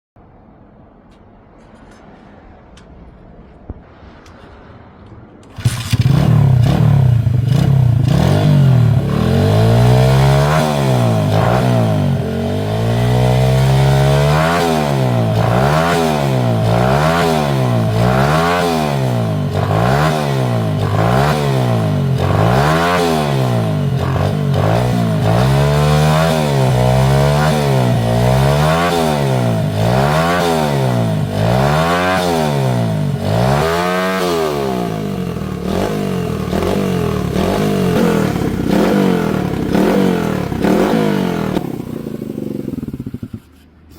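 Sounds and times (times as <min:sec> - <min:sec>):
motorcycle engine revving: 0:05.5 - 0:43.7.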